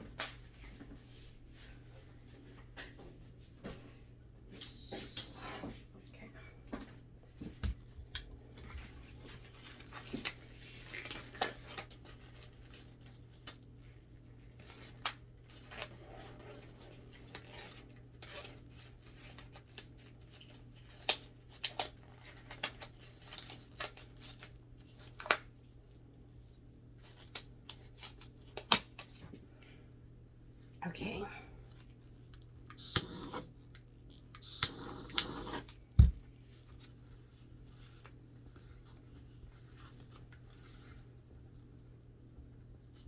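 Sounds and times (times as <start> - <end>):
steady low hum: 29.3 - 43.0.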